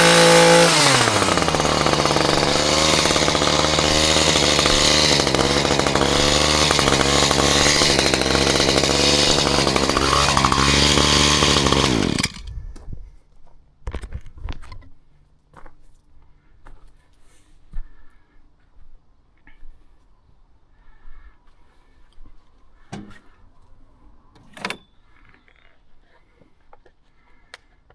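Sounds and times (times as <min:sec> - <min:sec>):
chainsaw engine running: 0:00.0 - 0:12.5.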